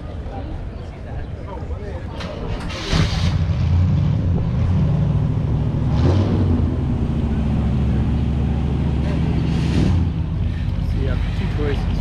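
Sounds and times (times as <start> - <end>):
car engine rumbling at low revs: 3.0 - 12.0.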